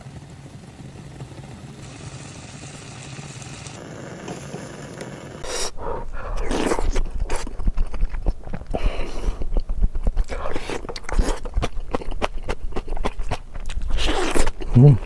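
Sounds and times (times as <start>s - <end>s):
biting and chewing: 5.4s - 15.0s.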